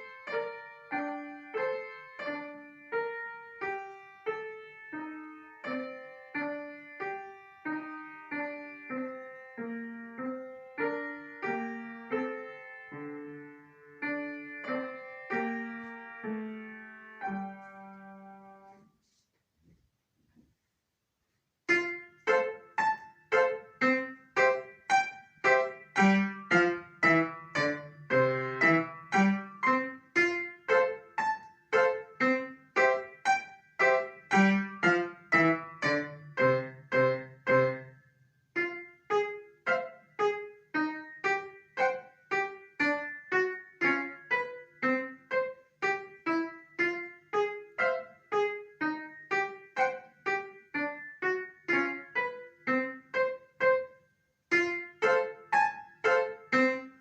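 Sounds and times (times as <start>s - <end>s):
piano playing lively piece: 0.0s - 18.8s, 21.7s - 38.0s, 38.6s - 57.0s.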